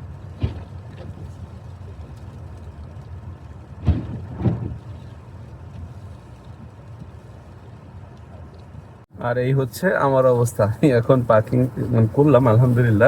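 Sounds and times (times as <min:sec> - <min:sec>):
car cabin low rumble: 0:00.0 - 0:13.0
short thumps: 0:00.4 - 0:01.2, 0:03.8 - 0:04.9.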